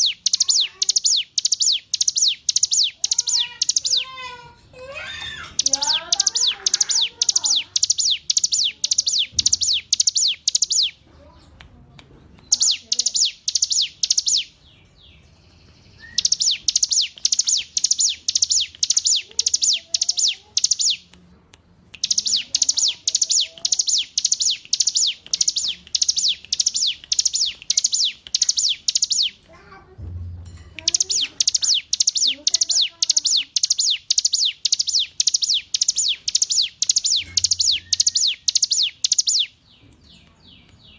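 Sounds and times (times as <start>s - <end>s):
bird chirping high notes: 0.0s - 4.4s, 5.0s - 11.0s, 12.5s - 21.1s, 22.0s - 29.5s, 30.5s - 39.6s.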